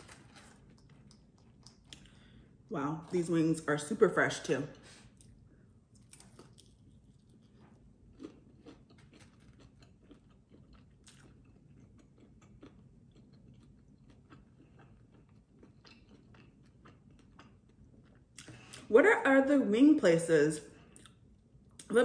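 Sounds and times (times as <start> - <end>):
chewing chicken wing: 6.0 - 18.8.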